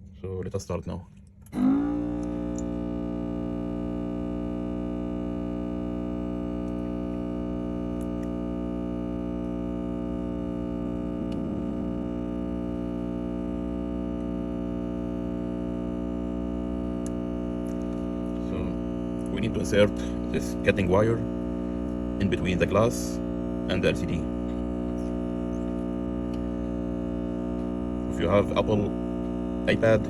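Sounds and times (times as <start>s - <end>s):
electric motor humming: 1.6s - 30.0s.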